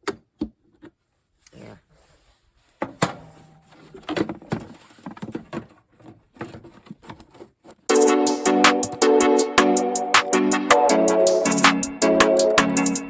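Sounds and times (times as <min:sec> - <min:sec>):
background music with steady beat: 0:07.9 - 0:13.0.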